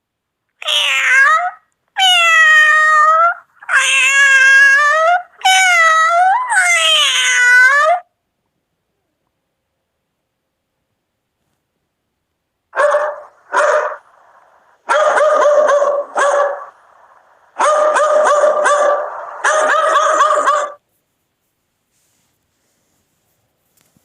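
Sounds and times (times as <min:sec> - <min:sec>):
dog barking: 0:12.8 - 0:14.2, 0:14.8 - 0:16.8, 0:17.5 - 0:20.8.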